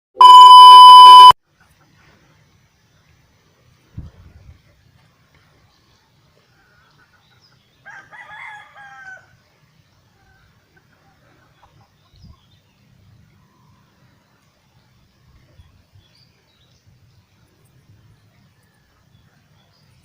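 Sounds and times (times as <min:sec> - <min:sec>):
rooster crowing: 0:07.8 - 0:09.3.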